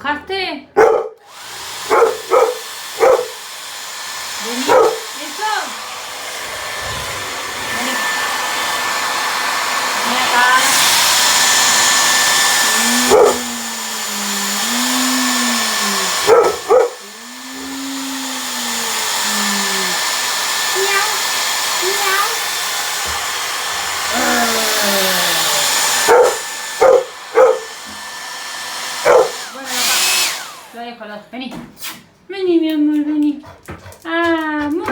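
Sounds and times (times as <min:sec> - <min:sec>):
dog barking: 0:00.8 - 0:01.2, 0:01.8 - 0:03.4, 0:04.6 - 0:05.1, 0:13.0 - 0:13.5, 0:16.2 - 0:17.0, 0:26.0 - 0:27.7, 0:29.0 - 0:29.4
hair dryer blowing: 0:01.2 - 0:31.0
dog howling cries: 0:12.7 - 0:20.1, 0:24.1 - 0:27.8, 0:29.0 - 0:29.4.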